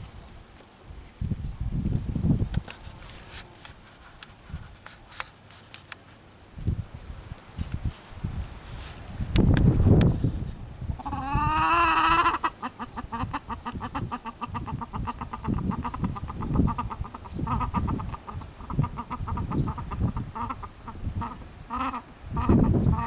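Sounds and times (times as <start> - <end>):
chicken clucking rapidly: 11.0 - 23.0
chicken wavering call: 11.0 - 23.0.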